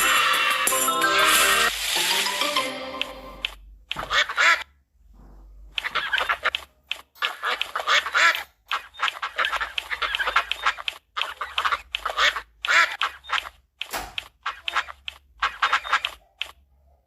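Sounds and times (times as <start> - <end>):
ducks quacking: 3.9 - 4.8, 7.2 - 13.6, 14.4 - 16.2.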